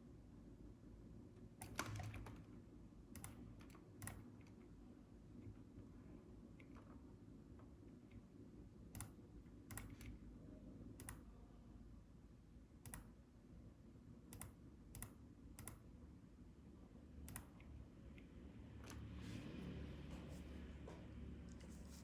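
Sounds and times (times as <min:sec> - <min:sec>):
computer clicks: 0:03.1 - 0:04.4, 0:08.9 - 0:10.2, 0:11.0 - 0:11.2, 0:12.8 - 0:13.1, 0:14.3 - 0:15.8, 0:17.3 - 0:17.7.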